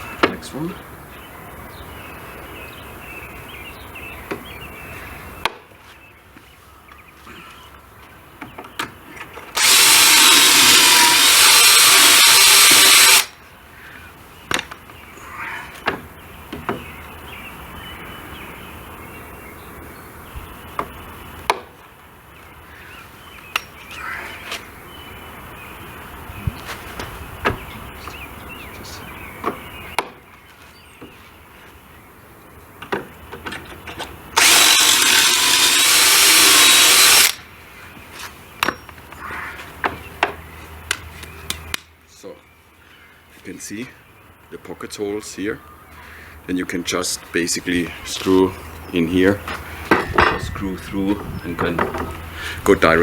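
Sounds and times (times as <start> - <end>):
power drill boring into wood: 9.6 - 13.3, 34.4 - 37.4.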